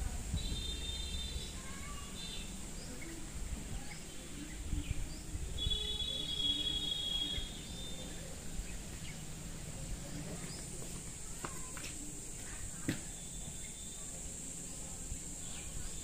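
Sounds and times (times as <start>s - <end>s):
low rumble of wind: 0.0s - 6.8s
birds chirping: 0.3s - 11.8s
bird trill: 5.6s - 9.2s.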